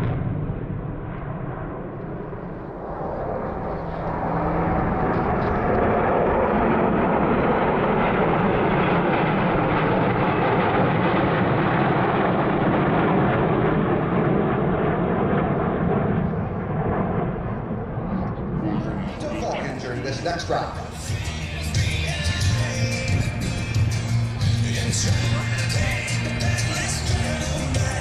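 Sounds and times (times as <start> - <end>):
jet flying past: 0.0 - 21.3.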